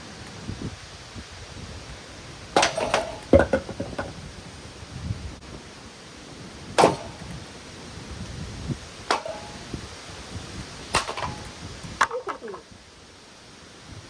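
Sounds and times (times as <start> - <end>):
metal fan being smashed: 2.6 - 4.1, 6.8 - 7.3, 9.1 - 9.8, 10.9 - 11.7.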